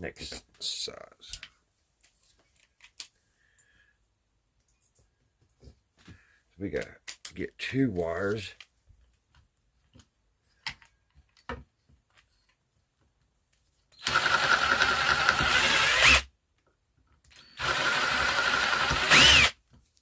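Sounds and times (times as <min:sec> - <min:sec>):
electric drill whining: 0:14.0 - 0:16.3, 0:17.4 - 0:19.6.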